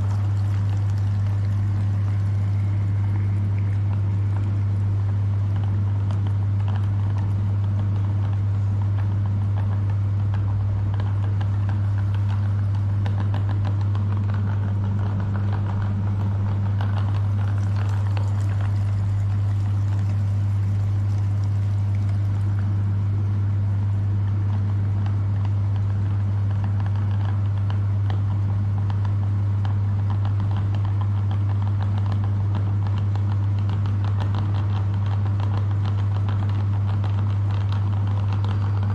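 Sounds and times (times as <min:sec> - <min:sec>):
meat grinder motor humming: 0:00.0 - 0:04.6, 0:15.9 - 0:23.5
faint grinding crackle: 0:00.0 - 0:28.2.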